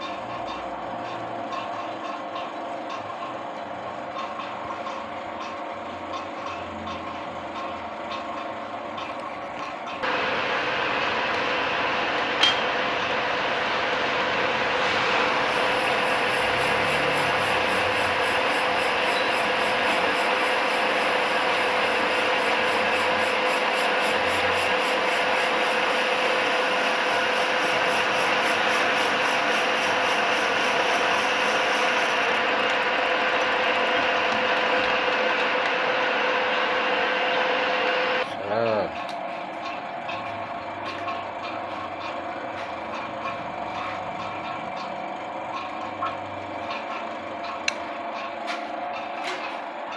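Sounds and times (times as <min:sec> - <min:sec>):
lathe cutting noise: 0:10.0 - 0:38.3.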